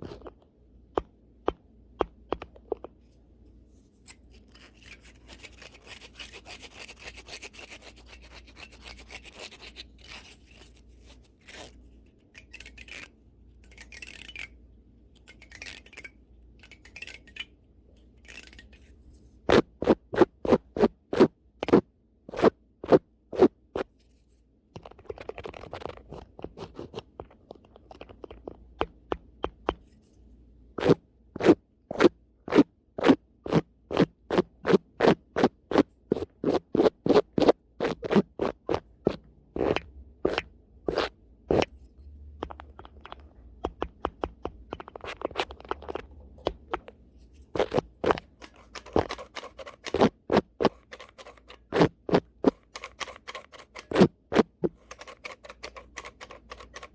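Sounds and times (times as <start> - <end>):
brush scraping microphone: 47.2 - 54.9.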